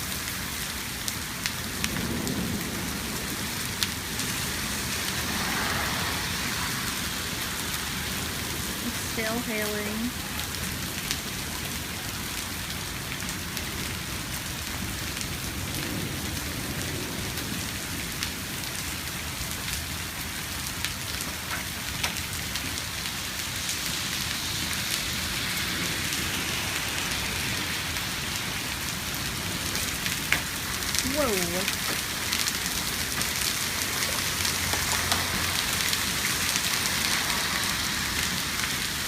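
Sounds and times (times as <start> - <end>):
hail falling: 0.0 - 39.0
hailstones ticking: 7.4 - 23.8, 28.4 - 38.9.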